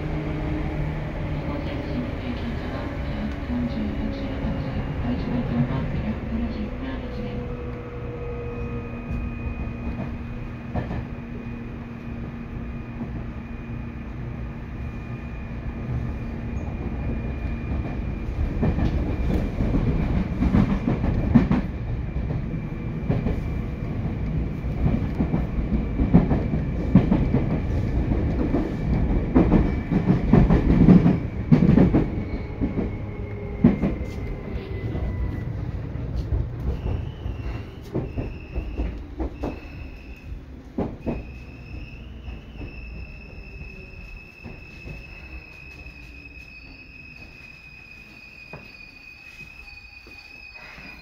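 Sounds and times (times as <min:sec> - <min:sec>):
train wheels rumbling on rail: 0:00.0 - 0:51.0
short high squeals: 0:41.1 - 0:51.0.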